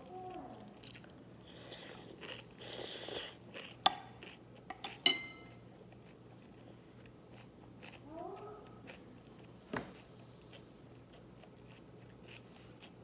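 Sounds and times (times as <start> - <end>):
slurping and chewing noodles: 0.7 - 4.4.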